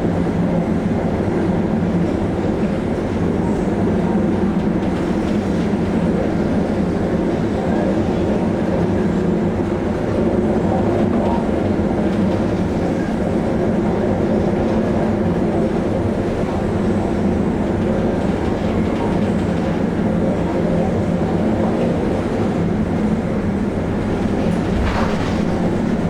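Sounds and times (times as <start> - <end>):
ship engines droning: 19.7 - 26.0.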